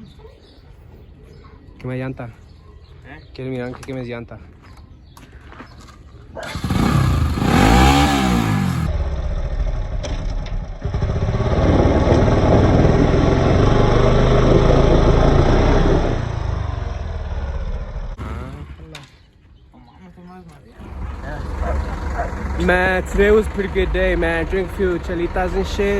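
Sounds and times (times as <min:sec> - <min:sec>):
motorcycle engine revving: 0:06.4 - 0:19.2, 0:20.8 - 0:25.9.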